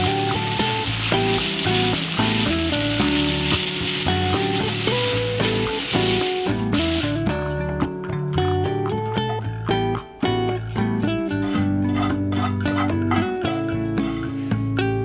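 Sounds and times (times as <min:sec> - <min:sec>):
pasta sizzling in frying pan: 0:00.0 - 0:07.3.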